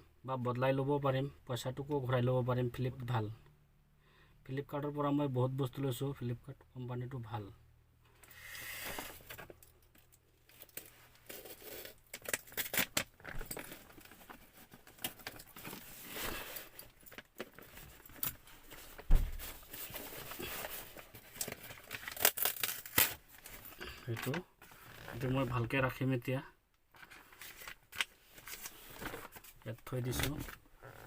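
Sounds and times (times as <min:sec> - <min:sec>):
packaging rustling and crinkling: 0:10.5 - 0:25.4, 0:27.0 - 0:31.0
loud thump: 0:19.1 - 0:19.4.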